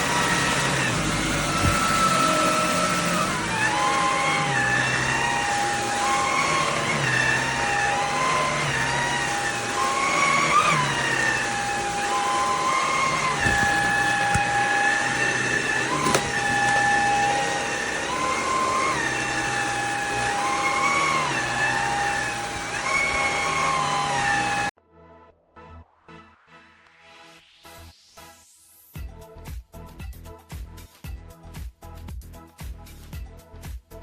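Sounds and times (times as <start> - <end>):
vacuum cleaner motor whine: 0.0 - 24.7.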